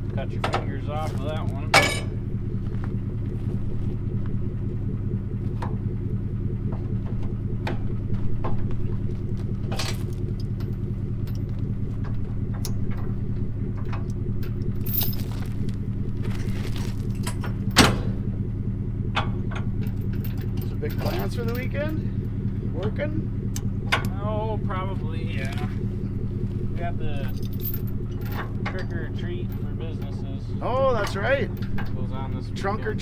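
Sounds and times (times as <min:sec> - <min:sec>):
vehicle engine idling: 0:00.0 - 0:33.0
sharp metal clank: 0:01.7 - 0:02.2
light metallic clinks: 0:14.8 - 0:15.8.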